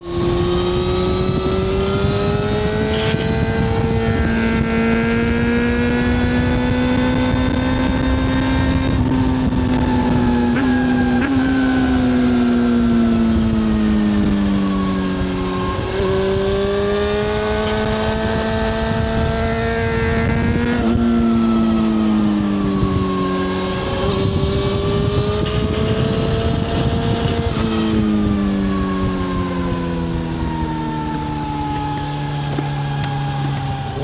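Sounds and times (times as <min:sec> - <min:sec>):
motorcycle engine revving: 0:00.0 - 0:34.0
wind rushing: 0:22.8 - 0:29.2.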